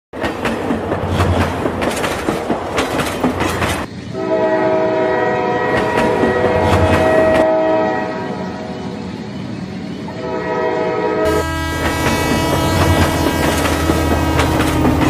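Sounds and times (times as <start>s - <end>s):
train wheels clattering: 0.2s - 4.1s, 5.7s - 7.5s, 11.3s - 15.0s
multi-tone train horn: 4.1s - 9.0s, 10.1s - 15.0s.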